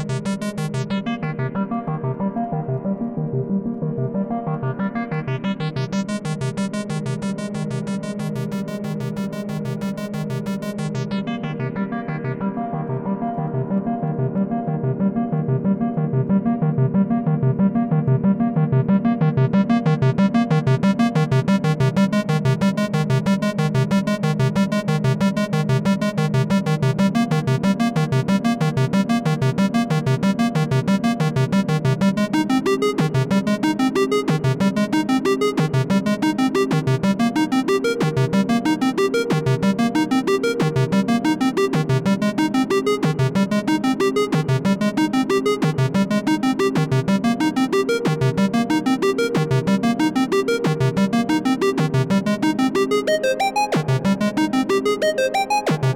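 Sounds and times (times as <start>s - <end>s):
synthesizer arpeggio: 36.2s - 55.9s.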